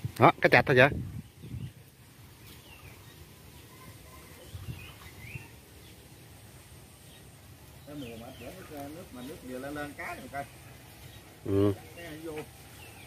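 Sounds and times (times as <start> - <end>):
faint bird chirps: 1.2 - 6.3.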